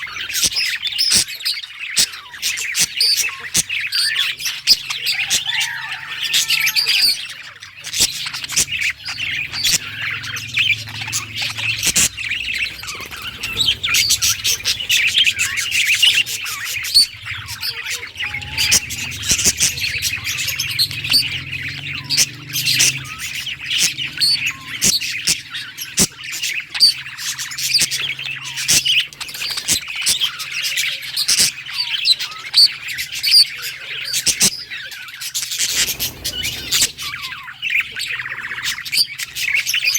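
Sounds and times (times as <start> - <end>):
budgies chattering and warbling: 0.0 - 39.9.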